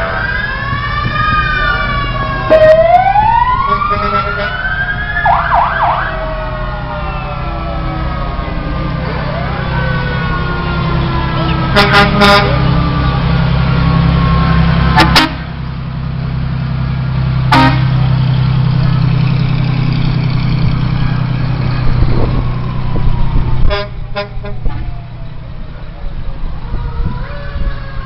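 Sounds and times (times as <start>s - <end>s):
faint siren winding down: 0.0s - 15.0s, 18.6s - 28.0s
large engine drone: 0.0s - 28.0s
fire truck horn toots: 3.6s - 4.7s, 11.3s - 12.8s, 14.9s - 15.5s, 17.5s - 18.0s, 23.6s - 24.8s.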